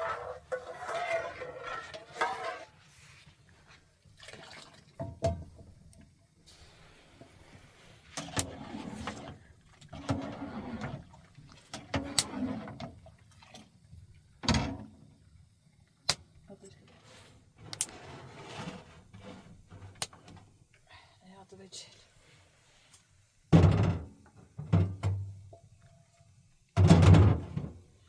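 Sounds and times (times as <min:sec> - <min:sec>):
water sloshing and pouring: 0:00.0 - 0:06.2, 0:06.8 - 0:16.0.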